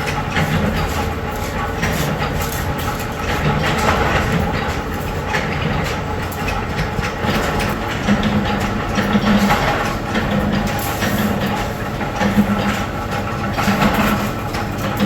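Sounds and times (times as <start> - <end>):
metalworking machinery humming: 0.0 - 15.0.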